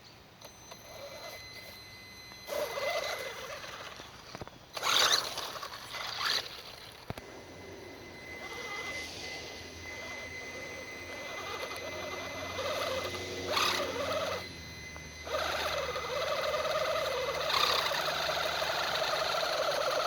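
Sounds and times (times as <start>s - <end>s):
toy truck motor whirring: 0.4s - 20.0s.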